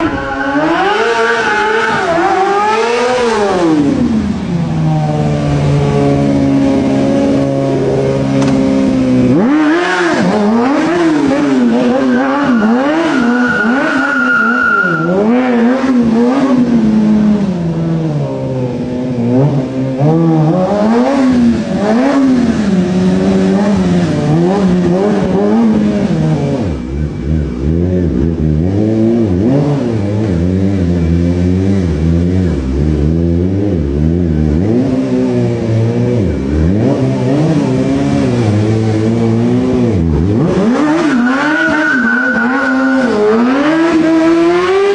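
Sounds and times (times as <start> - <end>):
high-pitched squeal: 0.0 - 2.6, 11.6 - 15.8, 40.9 - 43.8
motorcycle engine revving: 0.0 - 44.9.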